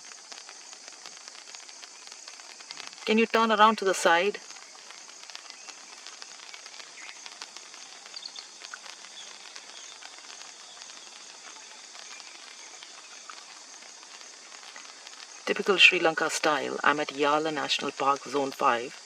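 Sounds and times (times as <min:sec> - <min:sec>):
steady high hiss: 0:00.0 - 0:19.0
small scattered clicks: 0:04.4 - 0:15.5.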